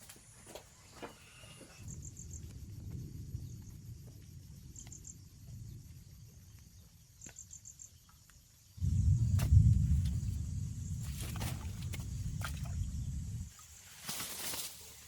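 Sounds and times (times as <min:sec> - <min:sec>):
cricket chirping: 0:00.0 - 0:15.0
low rumble: 0:08.8 - 0:13.6.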